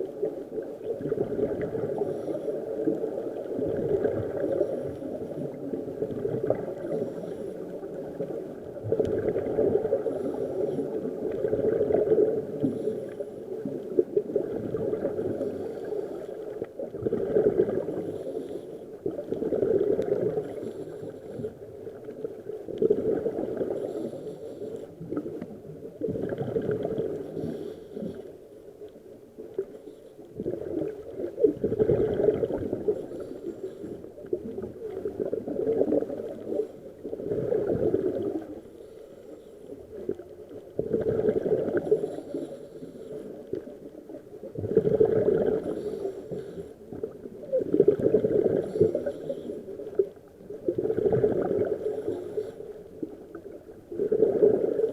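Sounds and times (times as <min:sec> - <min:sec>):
regulator bubbles gurgling underwater: 0:00.0 - 0:54.9.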